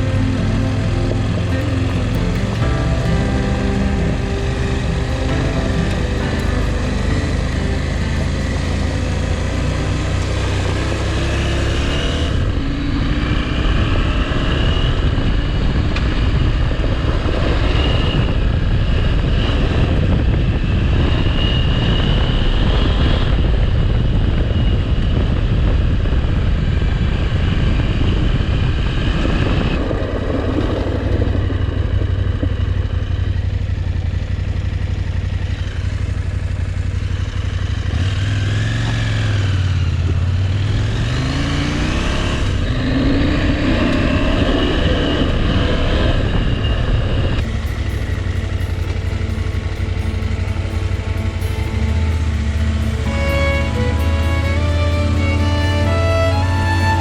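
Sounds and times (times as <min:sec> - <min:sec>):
motorcycle engine running: 0:00.0 - 0:21.1, 0:29.9 - 0:44.4, 0:47.4 - 0:57.0
wind and tyre noise: 0:00.0 - 0:57.0.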